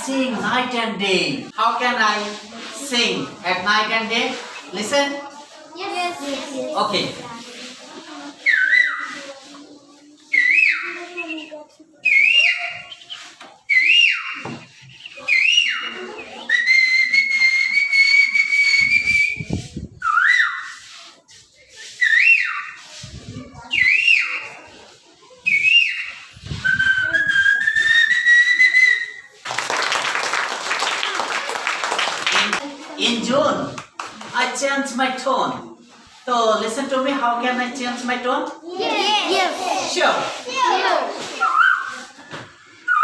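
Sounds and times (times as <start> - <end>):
people clapping: 29.3 - 32.8, 33.7 - 34.4.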